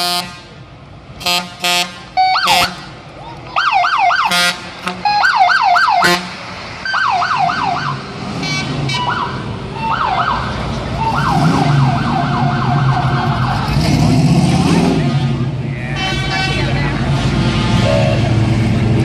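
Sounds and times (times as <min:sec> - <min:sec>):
vehicle engine low rumble: 0:00.0 - 0:19.0
electronic siren wailing and yelping: 0:09.0 - 0:10.4, 0:11.0 - 0:13.8.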